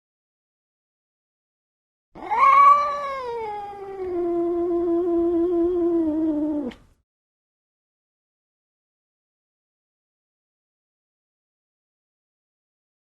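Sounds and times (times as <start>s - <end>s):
cat meowing: 2.2s - 6.8s.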